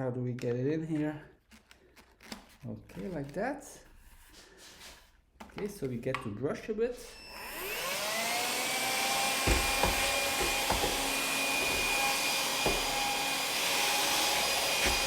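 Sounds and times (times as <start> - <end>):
vacuum cleaner motor whine: 7.1 - 15.0
brush bumping against surfaces: 9.3 - 15.0.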